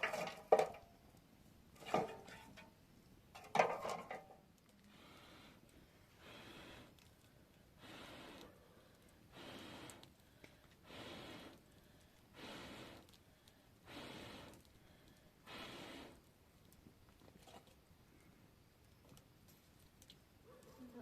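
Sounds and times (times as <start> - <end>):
person breathing hard: 4.9 - 7.1, 7.7 - 16.2.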